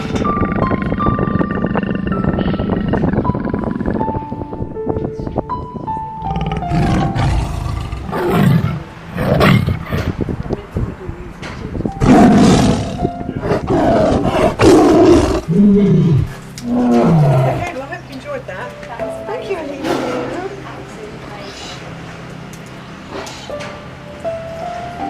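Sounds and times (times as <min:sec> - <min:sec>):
tiger roaring and growling: 0:00.0 - 0:04.3, 0:06.2 - 0:10.3, 0:12.0 - 0:17.8, 0:19.8 - 0:20.7
background music: 0:00.0 - 0:10.3, 0:11.9 - 0:25.0.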